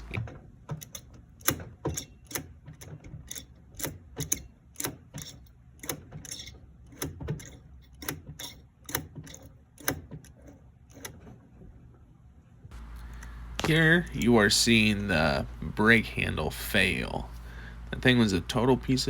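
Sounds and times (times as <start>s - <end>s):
brake lever clicking: 0.0s - 11.2s
low steady hum: 0.0s - 19.0s.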